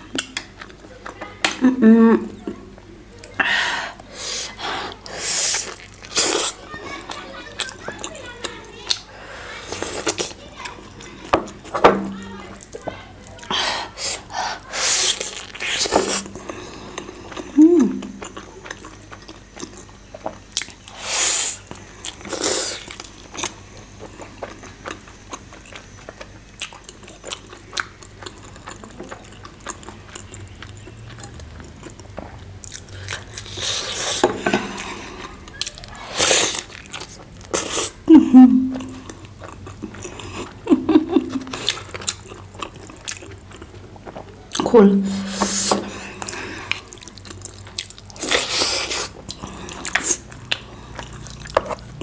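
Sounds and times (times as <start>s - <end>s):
person chewing food: 3.2s - 52.0s
wet slurping: 3.4s - 6.7s, 13.5s - 17.0s, 20.9s - 23.0s, 33.0s - 38.0s, 48.1s - 51.0s.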